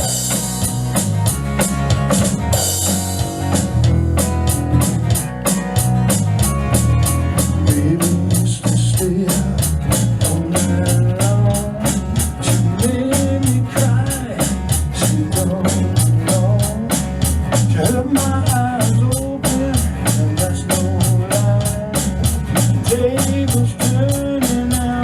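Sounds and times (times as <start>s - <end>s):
lead melody with bends and vibrato: 0.0s - 8.0s
bass line: 0.0s - 25.0s
drum kit with cymbal strikes: 0.0s - 25.0s.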